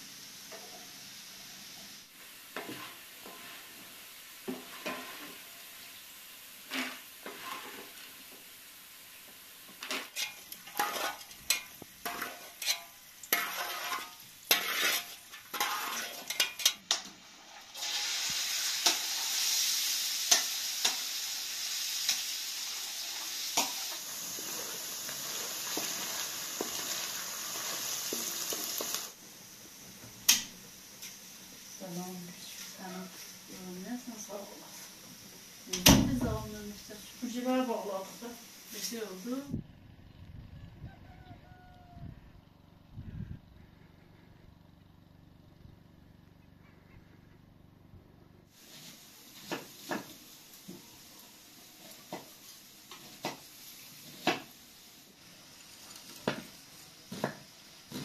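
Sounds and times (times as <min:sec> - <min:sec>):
oil sizzling in frying pan: 0:00.0 - 0:39.5, 0:48.5 - 0:58.0
wooden spatula scraping: 0:02.5 - 0:05.5, 0:06.6 - 0:08.4, 0:09.7 - 0:18.0
spoon scraping a plate: 0:09.8 - 0:16.8.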